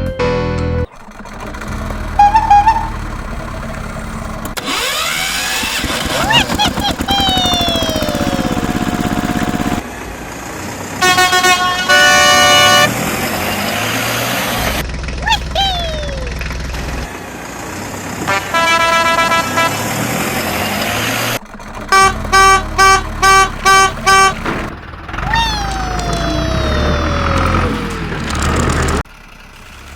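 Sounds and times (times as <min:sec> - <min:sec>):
steady engine sound: 0:00.8 - 0:29.9
vehicle horn honking: 0:02.1 - 0:03.1, 0:11.0 - 0:13.0, 0:18.3 - 0:20.0, 0:21.8 - 0:24.7
quick falling whistle: 0:02.2 - 0:03.0.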